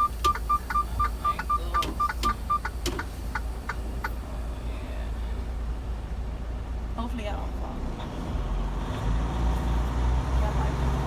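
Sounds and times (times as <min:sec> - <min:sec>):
rapid electronic beeping: 0:00.0 - 0:02.7
truck engine idling: 0:00.0 - 0:07.6.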